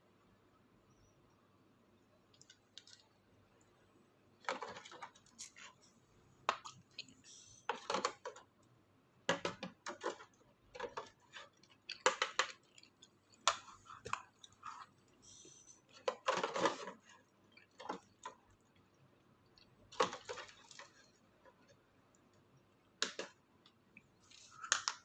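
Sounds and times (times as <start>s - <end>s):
chewing and clicking: 4.5s - 8.7s, 9.9s - 25.0s.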